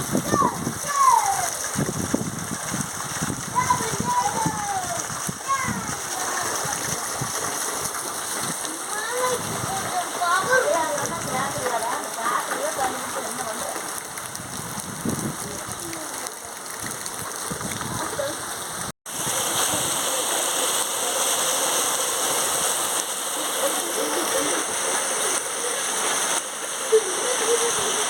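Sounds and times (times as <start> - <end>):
steady rain: 0.0 - 28.0.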